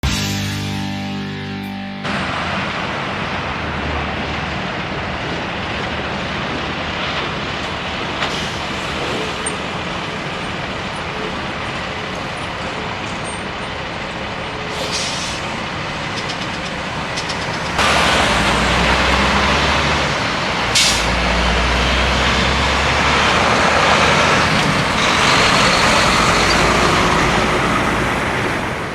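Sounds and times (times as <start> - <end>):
road traffic going by: 2.0 - 28.9
truck diesel engine rumbling: 2.0 - 28.9
air brakes hissing: 8.2 - 11.1, 14.6 - 21.7.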